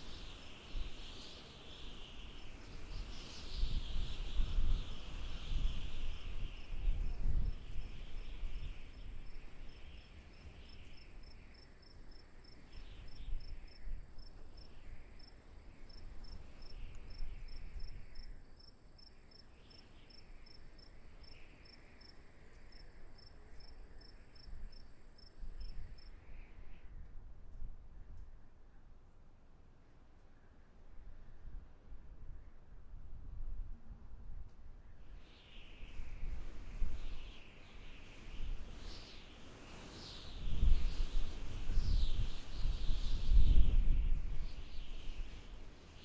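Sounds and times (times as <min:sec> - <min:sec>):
crickets chirping: 0:00.0 - 0:26.2.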